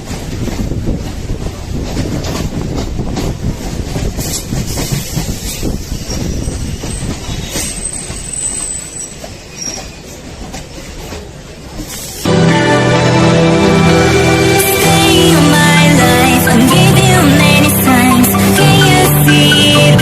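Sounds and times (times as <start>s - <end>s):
train wheels rumbling and rattling: 0.0s - 12.3s
high wheel squeal: 5.6s - 10.2s.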